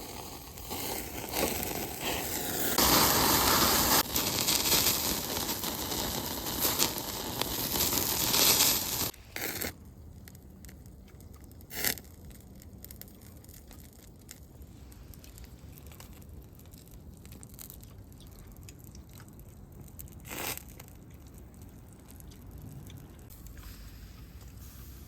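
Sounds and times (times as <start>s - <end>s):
campfire crackling and popping: 0.0s - 23.6s.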